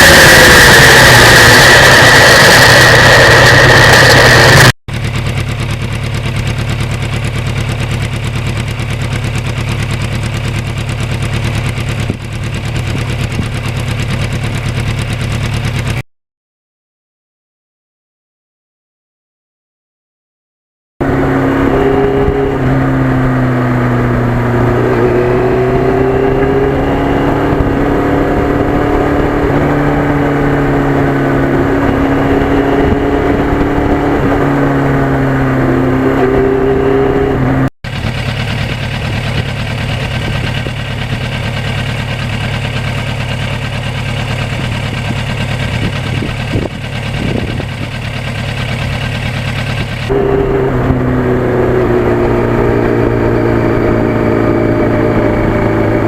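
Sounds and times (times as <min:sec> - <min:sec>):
steady rushing noise: 0:00.0 - 0:04.7
motorcycle engine running: 0:00.0 - 0:16.0, 0:21.0 - 0:56.0.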